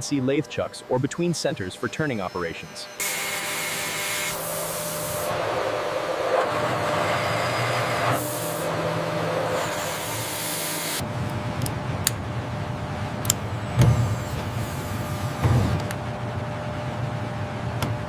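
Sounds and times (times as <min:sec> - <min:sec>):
factory machinery hissing: 0:00.0 - 0:11.0, 0:13.6 - 0:15.8.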